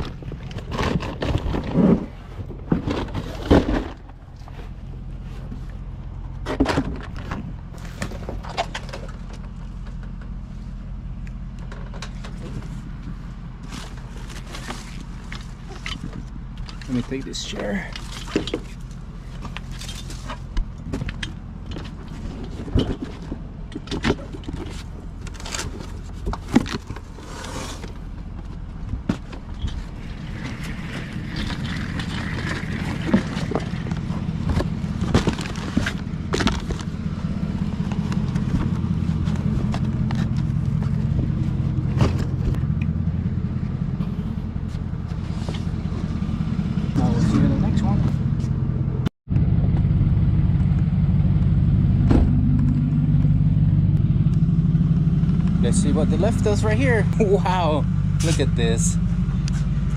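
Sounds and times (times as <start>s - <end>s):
knocks and scrapes: 0.0s - 10.3s, 11.6s - 48.6s
car engine rumbling: 0.0s - 59.9s.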